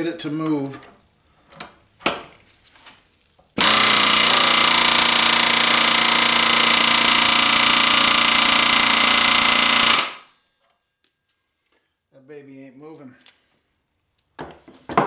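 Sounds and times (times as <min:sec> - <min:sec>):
pneumatic air hammer running: 0:03.6 - 0:10.3.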